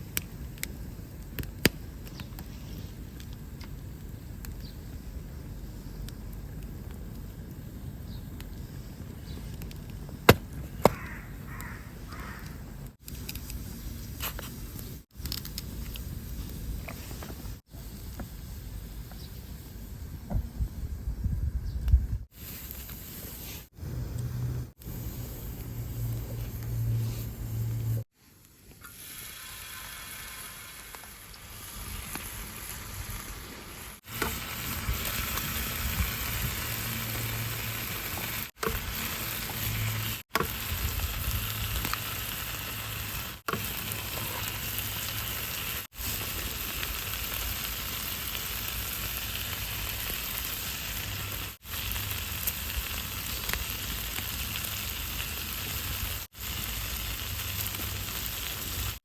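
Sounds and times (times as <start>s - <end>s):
food sizzling on griddle: 24.3s - 59.0s.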